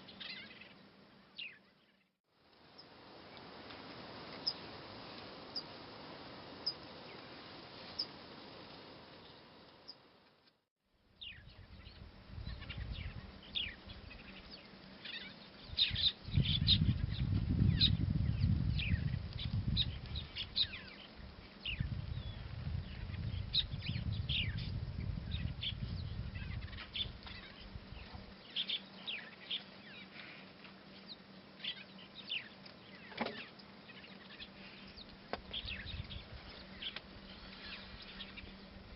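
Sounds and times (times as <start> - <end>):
birds chirping: 0.0 - 2.1, 11.2 - 38.9
steady hiss: 2.4 - 10.4.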